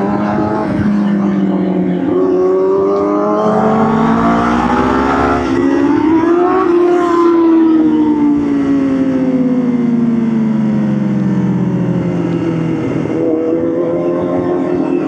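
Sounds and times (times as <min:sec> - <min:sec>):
motorcycle engine: 0:02.7 - 0:08.1.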